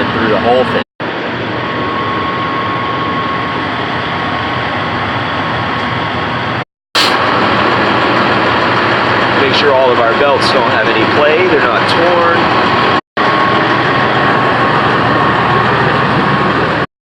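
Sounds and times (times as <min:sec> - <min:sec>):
thin steady whine: 0:00.0 - 0:16.8
diesel engine idling: 0:07.2 - 0:16.8.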